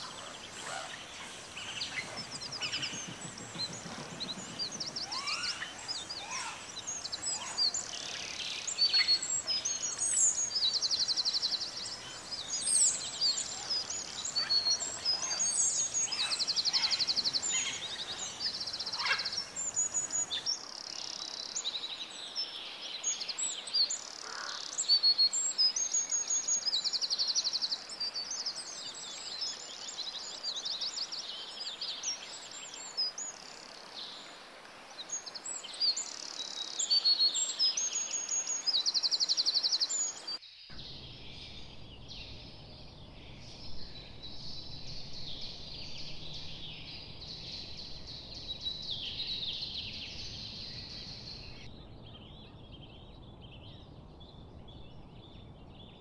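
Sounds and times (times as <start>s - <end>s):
small birds chirping and whistling: 0.0s - 21.8s.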